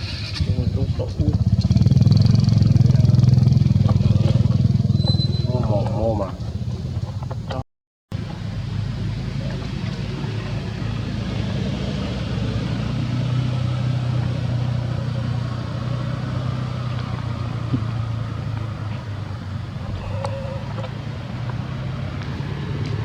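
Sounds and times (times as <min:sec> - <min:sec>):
low motor drone: 0:19.8 - 0:22.4.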